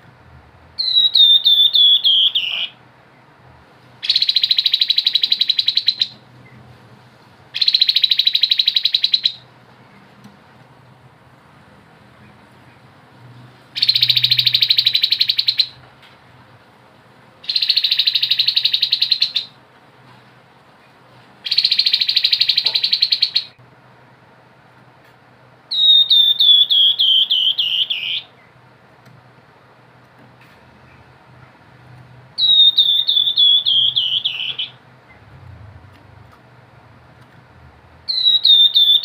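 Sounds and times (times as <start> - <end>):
bird singing trills: 0.8 - 2.8, 4.0 - 6.6, 7.6 - 9.5, 13.8 - 15.8, 17.4 - 19.6, 21.4 - 23.6, 25.7 - 28.6, 32.4 - 35.3, 38.1 - 39.0.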